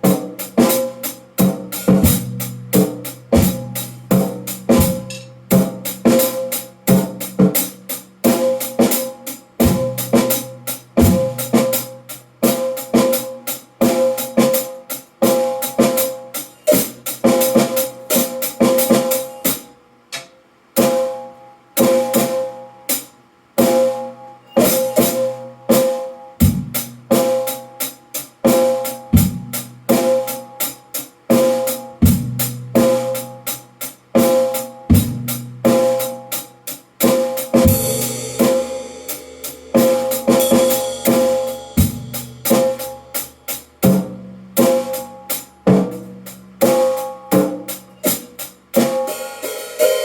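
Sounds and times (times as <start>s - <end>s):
cymbal strikes: 0.0s - 10.4s, 37.0s - 50.0s
drum kit playing: 0.0s - 50.0s.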